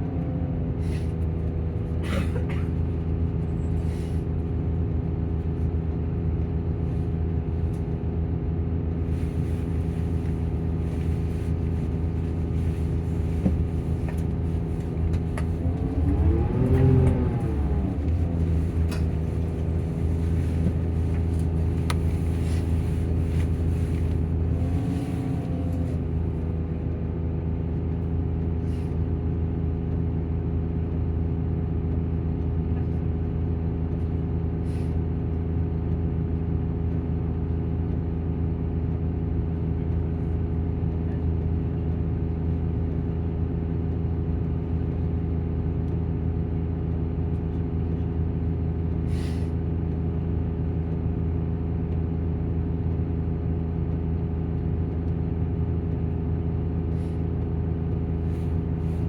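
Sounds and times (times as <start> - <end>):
bus diesel engine idling: 0.0 - 59.0
engine cooling fan running: 0.8 - 59.0
short air hisses: 49.1 - 49.5.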